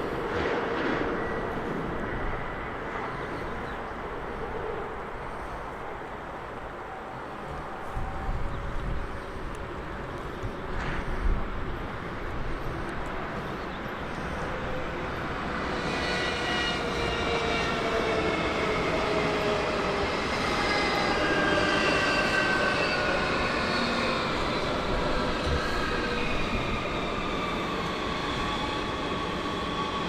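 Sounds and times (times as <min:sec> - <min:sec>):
electric train slowing down: 0:12.6 - 0:30.0.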